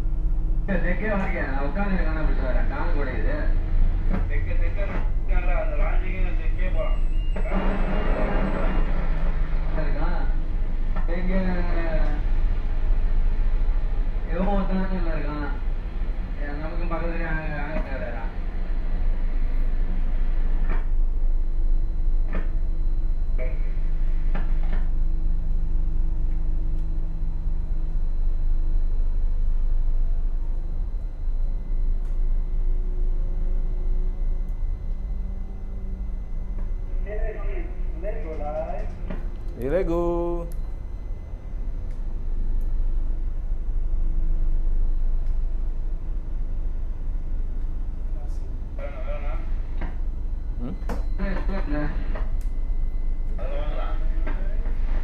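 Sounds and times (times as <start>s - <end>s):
boat diesel engines rumbling: 0.0s - 21.2s
humming tone: 0.0s - 55.0s.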